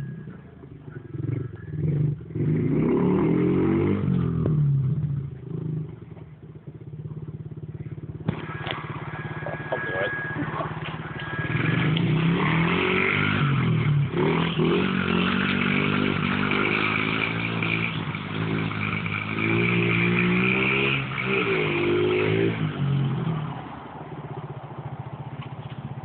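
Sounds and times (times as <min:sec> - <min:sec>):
small engine revving and idling: 0:00.0 - 0:26.0.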